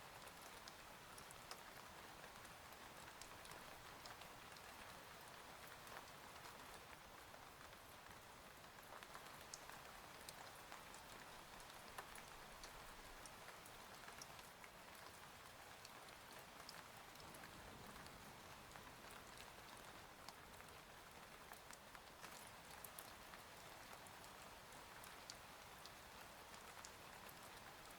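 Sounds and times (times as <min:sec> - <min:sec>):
faint steady rain: 0:00.0 - 0:27.9
raindrop ticks: 0:08.6 - 0:15.2.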